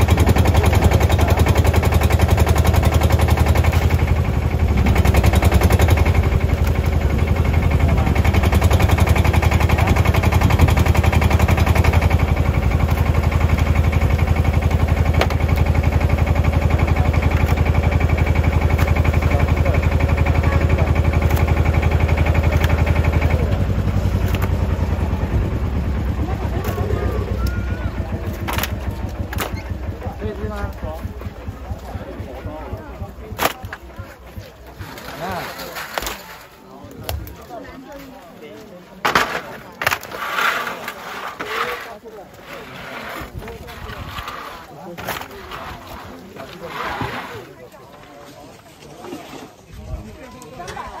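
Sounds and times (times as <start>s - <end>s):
engine knocking with low rumble: 0.0s - 35.3s.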